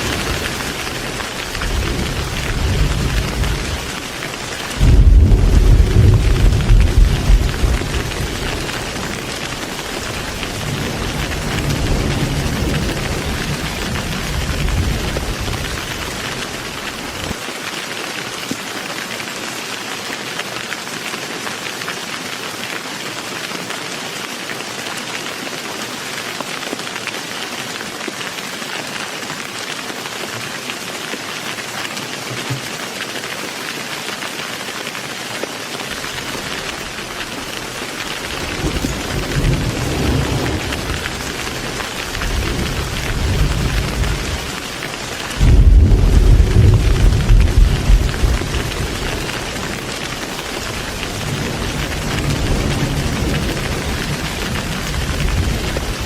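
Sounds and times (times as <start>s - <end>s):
low thunder rumble: 0.0s - 4.1s, 4.7s - 17.4s, 36.0s - 44.7s, 45.3s - 56.0s
heavy rain: 0.0s - 56.0s.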